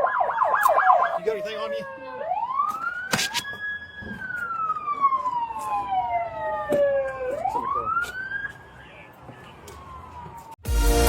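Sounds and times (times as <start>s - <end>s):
police siren wailing: 0.0s - 10.7s.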